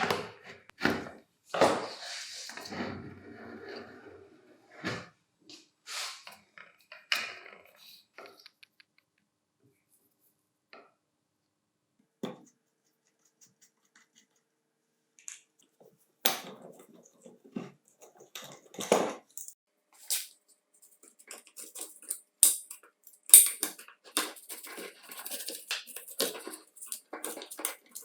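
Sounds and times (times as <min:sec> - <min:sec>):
tools clicking and knocking: 0:21.0 - 0:28.0.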